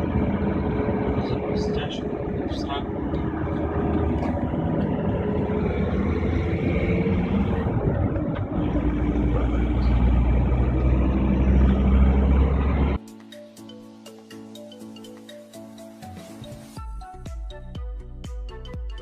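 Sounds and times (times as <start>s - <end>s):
road noise: 0.0s - 13.0s
vehicle engine: 0.0s - 13.0s.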